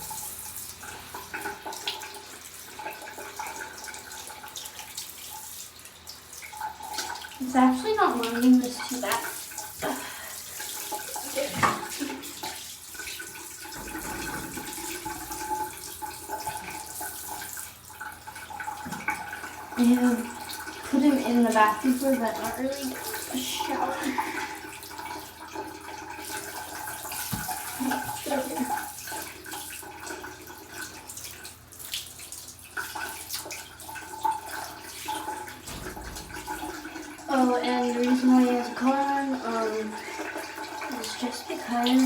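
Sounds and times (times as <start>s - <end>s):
shower water spraying: 0.0s - 25.4s, 26.2s - 29.8s, 31.0s - 42.0s.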